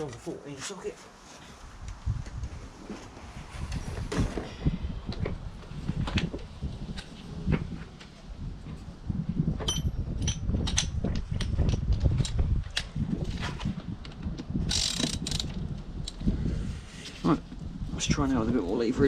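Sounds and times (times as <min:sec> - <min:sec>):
metal tools clinking: 0:09.6 - 0:11.0
ringing metallic clink: 0:09.7 - 0:10.4
socket wrench clicking: 0:09.7 - 0:12.9, 0:14.7 - 0:16.2.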